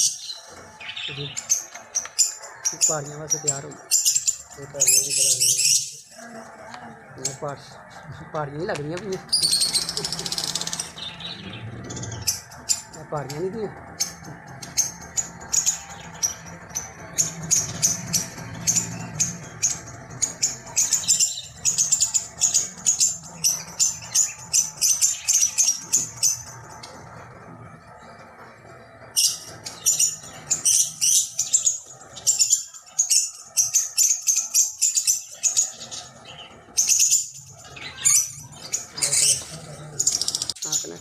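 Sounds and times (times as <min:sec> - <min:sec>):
birds chirping: 0:00.0 - 0:41.0.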